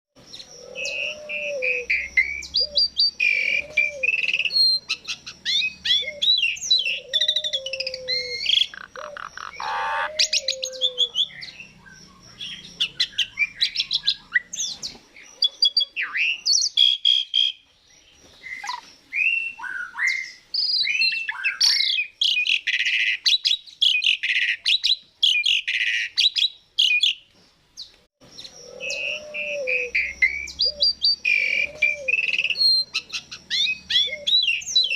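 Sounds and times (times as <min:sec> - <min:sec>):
starling singing: 0:00.2 - 0:17.6, 0:28.2 - 0:34.9.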